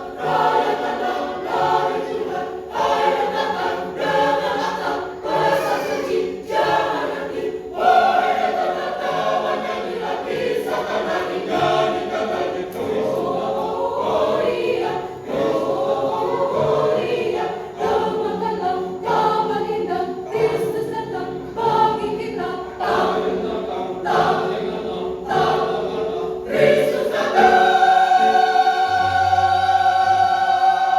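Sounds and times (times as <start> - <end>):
church choir singing: 0.0 - 30.9.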